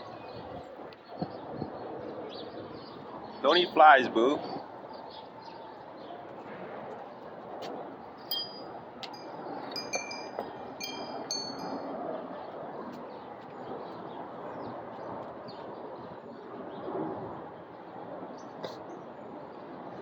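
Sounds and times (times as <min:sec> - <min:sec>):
high clear chime tones: 0:08.3 - 0:11.9.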